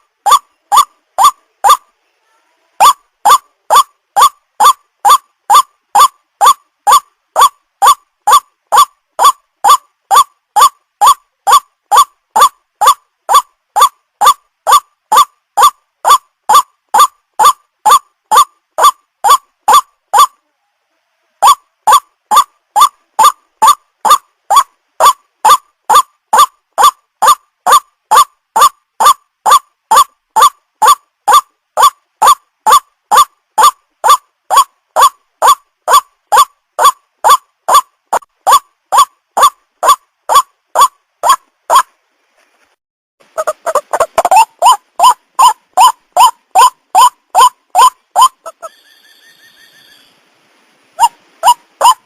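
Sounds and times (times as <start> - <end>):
bird call rising short notes: 47.8 - 50.2.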